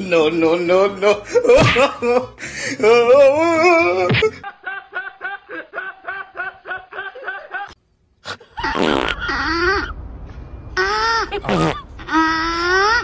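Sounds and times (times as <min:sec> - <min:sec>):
man laughing hard: 0:00.0 - 0:07.8.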